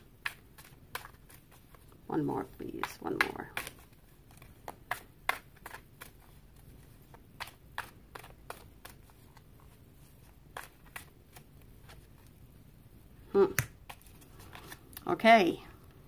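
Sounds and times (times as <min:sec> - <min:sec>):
cards snapping and tapping: 0:00.0 - 0:01.8, 0:02.6 - 0:09.5, 0:10.4 - 0:11.6.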